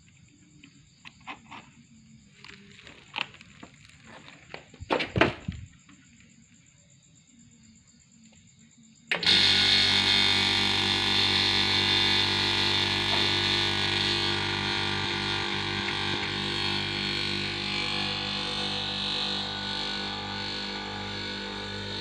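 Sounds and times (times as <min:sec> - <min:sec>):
machine motor humming and hissing: 0:09.1 - 0:22.0.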